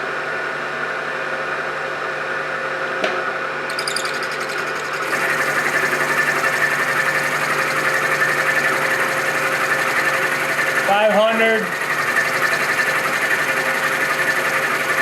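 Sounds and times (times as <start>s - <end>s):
milling machine cutting steel: 3.7s - 15.0s.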